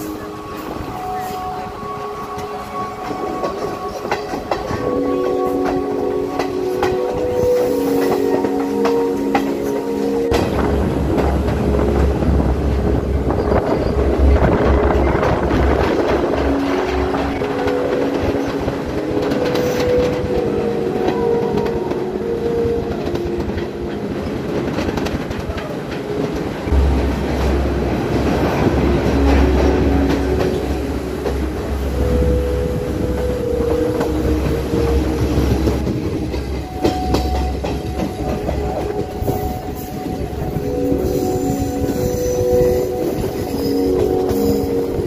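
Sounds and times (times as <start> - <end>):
train rumble and rail clatter: 0.0 - 45.0
deep low rumble: 26.7 - 39.4.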